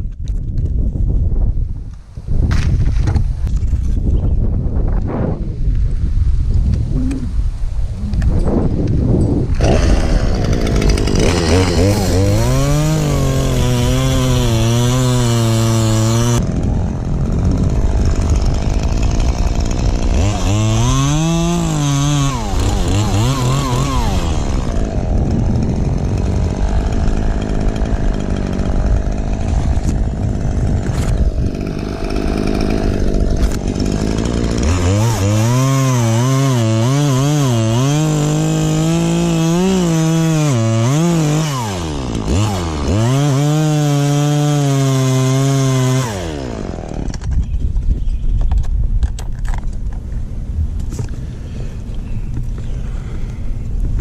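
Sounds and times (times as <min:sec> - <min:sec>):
chainsaw cutting wood: 0:08.2 - 0:47.6.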